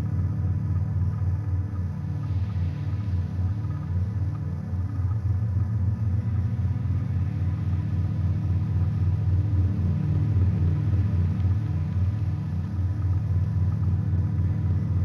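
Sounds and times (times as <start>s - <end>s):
analog synth drone pulsing: 0.0s - 15.0s.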